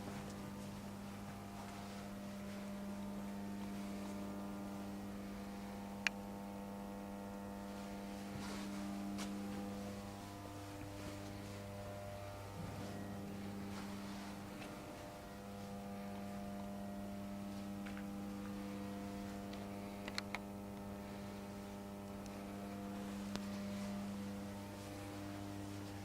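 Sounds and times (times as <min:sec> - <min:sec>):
industrial machine humming: 0:00.0 - 0:26.0.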